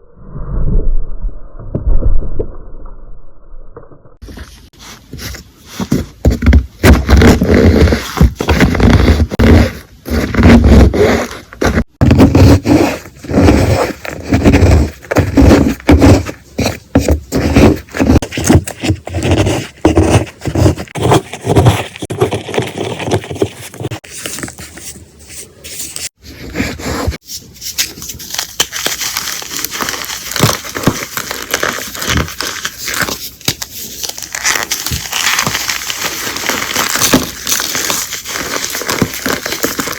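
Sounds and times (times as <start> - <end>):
chalk blocks crunching: 4.2 - 39.9
powder crackling: 27.7 - 39.9.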